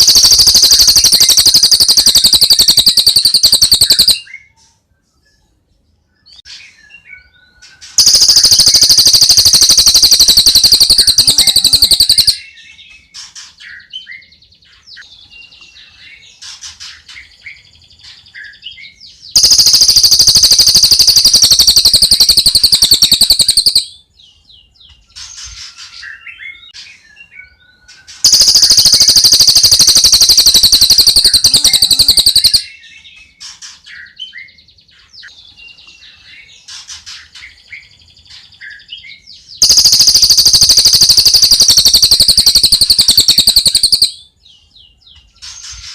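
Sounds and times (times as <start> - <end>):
bird chirps and whistles: 0.0 - 4.6, 6.3 - 14.3, 18.4 - 24.0, 26.0 - 33.3, 38.6 - 44.3
loud high-pitched bird trill: 0.0 - 4.6, 6.2 - 45.9.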